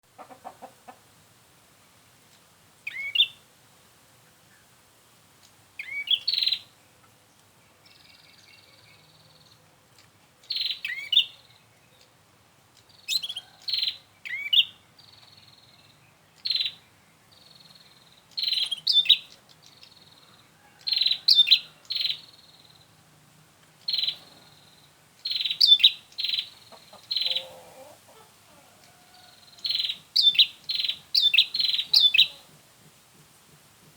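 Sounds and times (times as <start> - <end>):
bird chirping: 2.8 - 3.4, 5.8 - 23.0, 23.7 - 32.6.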